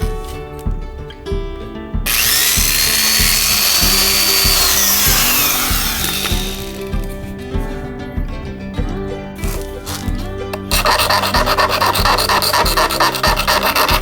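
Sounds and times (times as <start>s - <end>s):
background music with beat: 0.0s - 14.0s
power tool whining: 2.1s - 7.1s, 10.7s - 14.0s.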